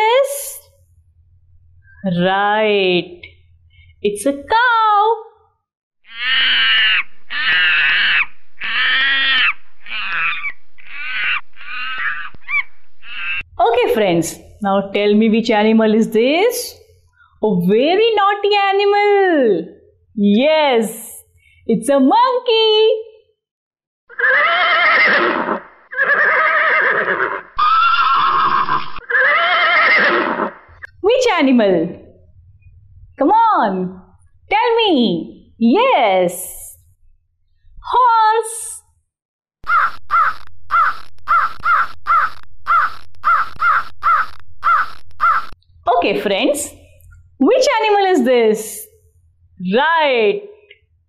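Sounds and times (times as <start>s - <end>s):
animal making harsh calls: 6.0s - 13.5s, 24.1s - 30.9s, 39.6s - 45.6s
horse neighing: 6.1s - 13.5s, 24.1s - 30.8s.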